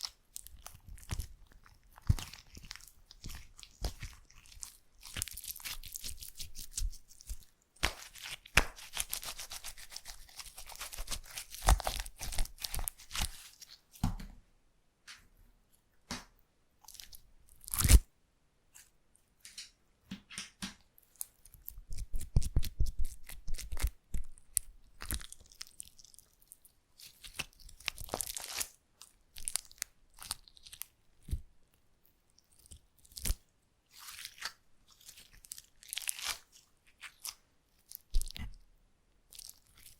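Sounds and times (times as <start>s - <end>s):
slime crackling and popping: 0.0s - 13.6s, 21.1s - 30.9s, 34.0s - 38.5s.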